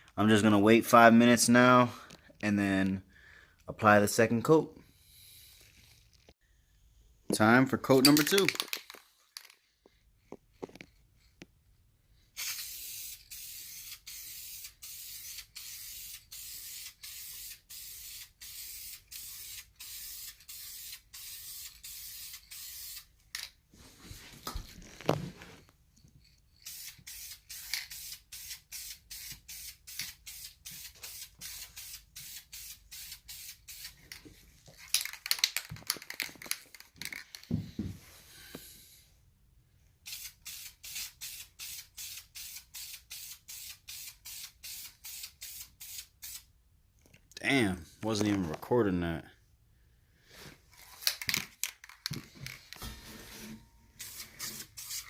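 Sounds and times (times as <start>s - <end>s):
spray paint can hissing: 12.4s - 23.1s, 26.6s - 34.0s, 40.0s - 46.5s, 54.0s - 55.0s.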